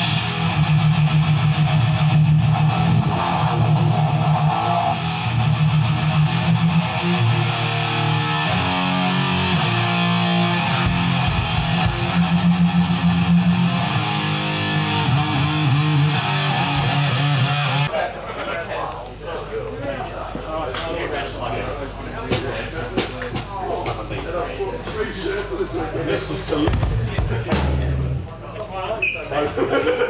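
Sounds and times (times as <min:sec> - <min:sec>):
distorted electric guitar riff: 0:00.0 - 0:17.9, 0:26.5 - 0:28.3.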